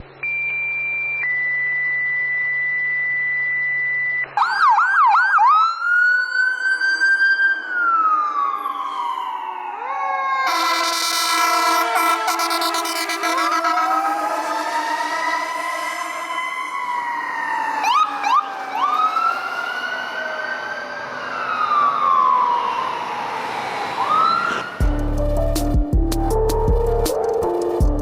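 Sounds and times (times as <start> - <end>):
emergency vehicle siren: 4.3 - 25.2
loud multi-pitch horn: 10.5 - 17.3.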